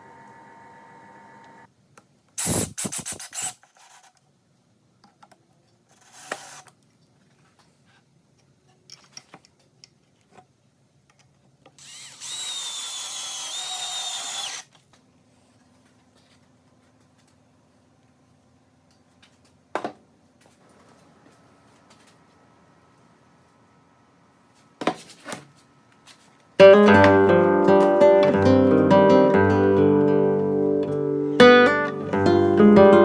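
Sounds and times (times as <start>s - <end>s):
power drill whining: 0.0s - 1.7s, 11.8s - 14.7s
steady hum: 0.0s - 1.7s.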